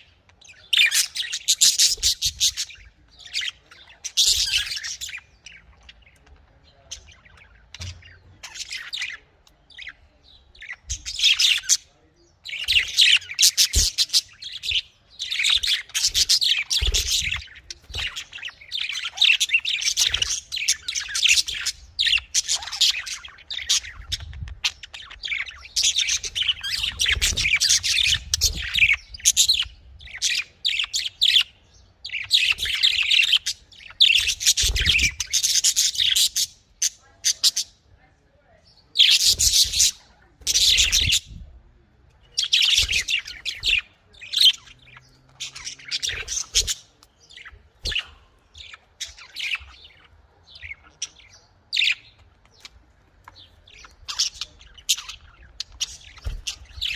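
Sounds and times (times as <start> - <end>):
budgerigars chirping and chattering: 0.0 - 56.9.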